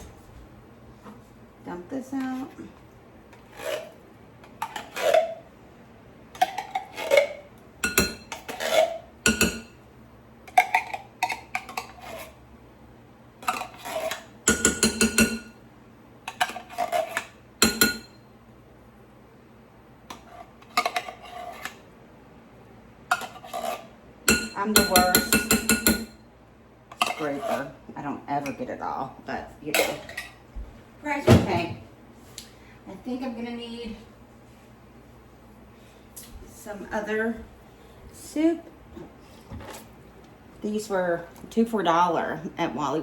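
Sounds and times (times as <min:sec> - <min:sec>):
utensil scraping inside tin can: 0:03.4 - 0:05.4, 0:08.3 - 0:09.1, 0:10.8 - 0:12.4, 0:13.4 - 0:14.3, 0:23.2 - 0:23.9, 0:27.0 - 0:27.8.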